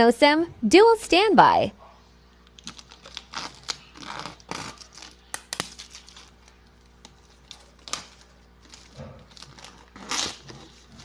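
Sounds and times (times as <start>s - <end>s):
packaging rustling: 2.4s - 11.0s.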